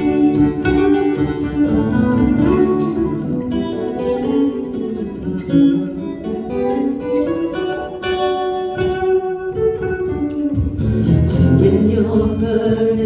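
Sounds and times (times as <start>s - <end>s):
guitar picking quick notes: 0.0s - 12.6s
live band playing: 0.0s - 13.0s.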